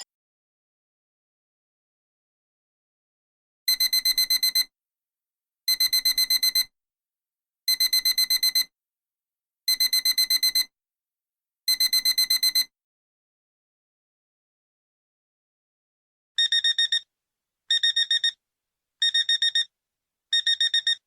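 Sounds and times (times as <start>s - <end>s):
alarm clock beeping: 3.7s - 4.7s, 7.7s - 8.6s, 11.7s - 12.7s, 16.4s - 17.0s, 17.7s - 18.4s, 19.0s - 19.7s, 20.4s - 21.0s.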